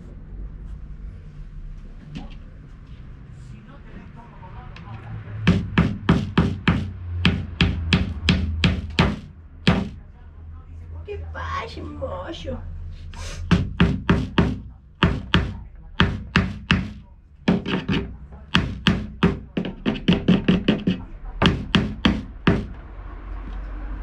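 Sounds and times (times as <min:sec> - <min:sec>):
hammer knocking on wood: 0:05.4 - 0:10.0, 0:13.5 - 0:22.8.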